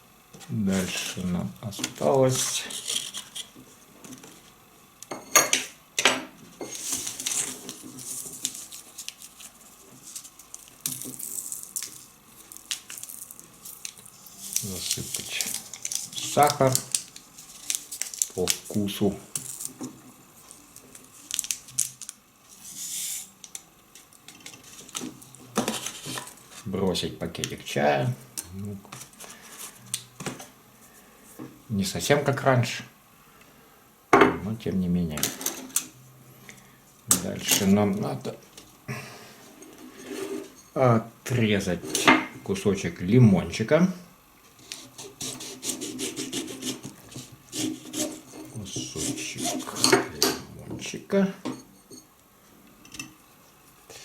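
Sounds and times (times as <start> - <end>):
sugar rustling: 6.6 - 26.7, 44.5 - 50.7
knife sawing through lemon: 44.6 - 49.9.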